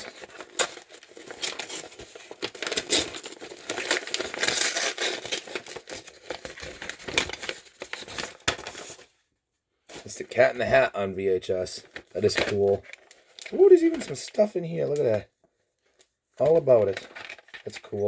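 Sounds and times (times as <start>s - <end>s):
packaging being torn and crinkled: 0.0s - 9.0s, 11.9s - 15.2s, 16.4s - 18.0s.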